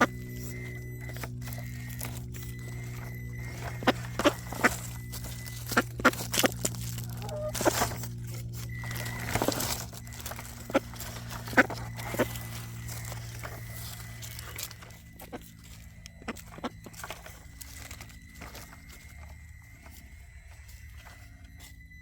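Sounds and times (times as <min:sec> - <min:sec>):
electric motor and gears whining: 0:00.0 - 0:22.0.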